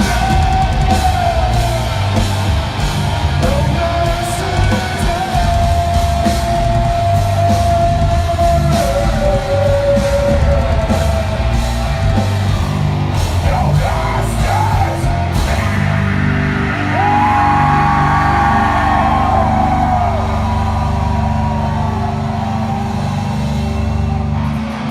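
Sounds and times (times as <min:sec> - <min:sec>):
heavy rock music: 0:00.0 - 0:24.9.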